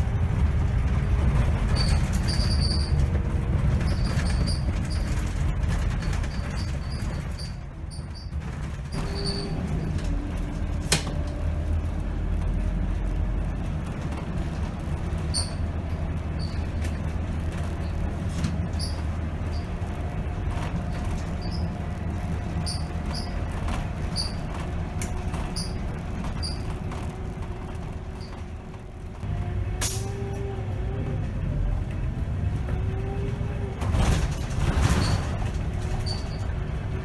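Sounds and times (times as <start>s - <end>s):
bus diesel engine rumbling: 0.0s - 37.0s
bus squeaks and rattles: 0.0s - 37.0s.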